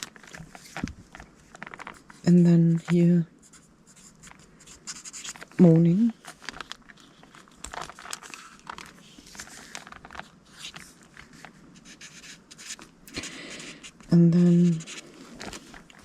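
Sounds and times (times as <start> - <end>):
paper cards rustling: 0.0 - 3.0, 4.1 - 16.0
scratchy strokes: 13.6 - 15.7.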